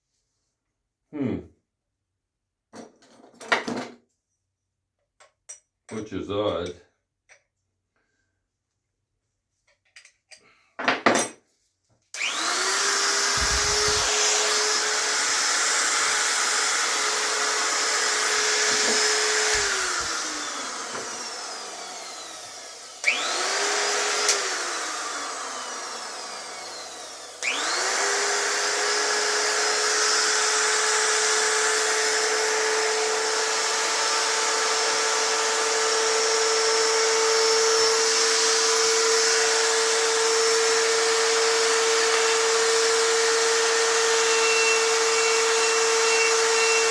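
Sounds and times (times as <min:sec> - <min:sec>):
die grinder motor whine: 0:12.2 - 0:46.9
motor winding down: 0:12.2 - 0:46.9.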